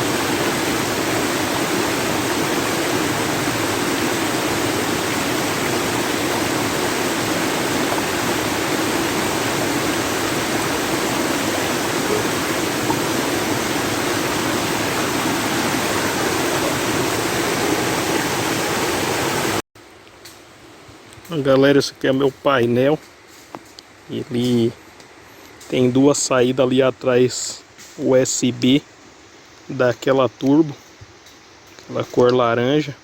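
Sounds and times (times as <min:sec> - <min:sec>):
rushing water: 0:00.0 - 0:19.6.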